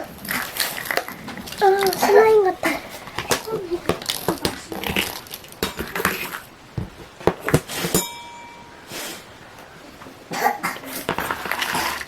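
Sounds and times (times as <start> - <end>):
short ringing clink: 8.0 - 8.9.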